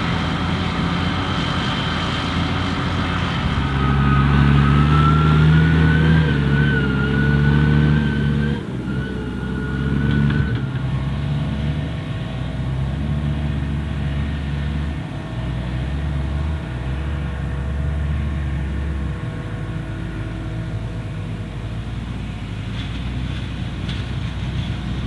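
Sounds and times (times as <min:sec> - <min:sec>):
high whine: 0:00.0 - 0:12.6
diesel harvesting machinery running: 0:00.0 - 0:25.0.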